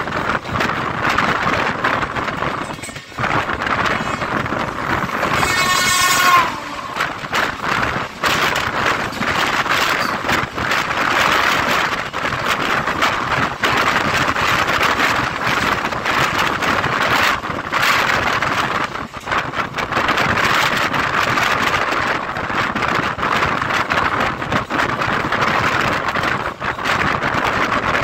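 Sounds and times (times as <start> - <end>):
train wheels clattering: 0.0 - 28.0
train horn blowing: 3.8 - 8.0.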